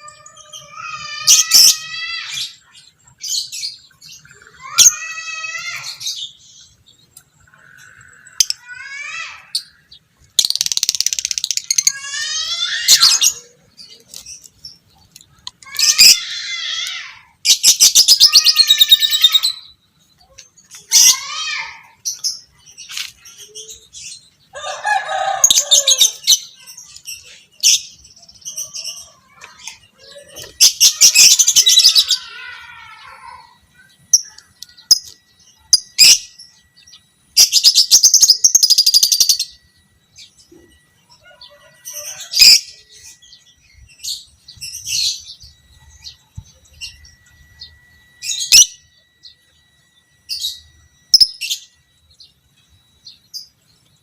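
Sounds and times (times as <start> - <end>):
lovebird chirping and clicking: 10.4 - 11.8.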